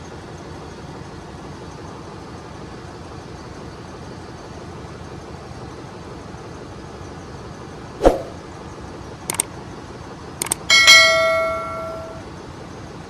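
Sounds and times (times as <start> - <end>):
engine-room machinery hum: 0.0 - 13.0
metal tools knocking and clinking: 10.4 - 12.2
ringing metal clang: 10.7 - 12.2.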